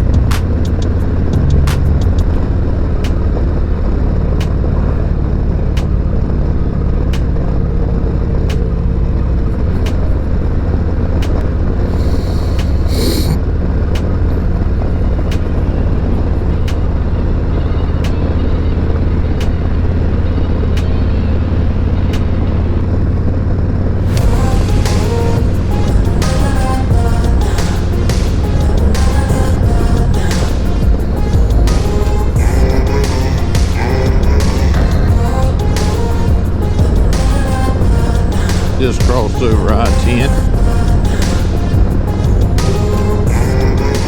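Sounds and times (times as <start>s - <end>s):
brief hiss: 11.9s - 13.4s.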